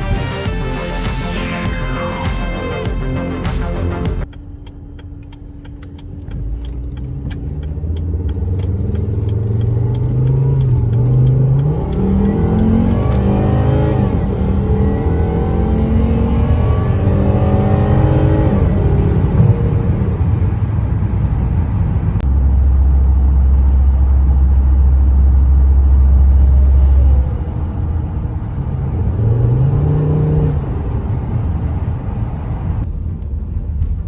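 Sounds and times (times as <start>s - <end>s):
car engine accelerating: 0.0s - 34.0s
faint clicking: 4.2s - 13.2s.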